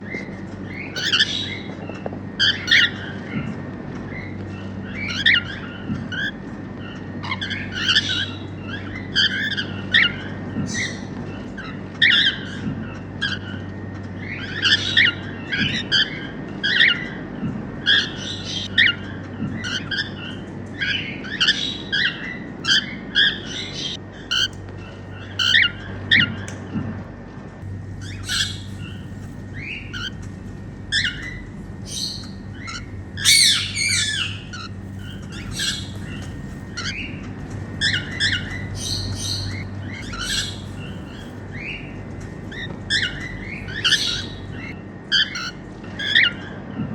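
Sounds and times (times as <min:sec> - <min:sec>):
steady low hum: 0:00.0 - 0:46.9
cockatiels chirping and squawking: 0:27.7 - 0:44.7.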